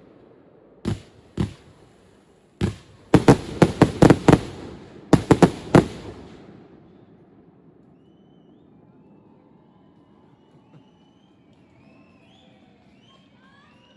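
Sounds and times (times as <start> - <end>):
firework bangs: 0.9 - 7.1.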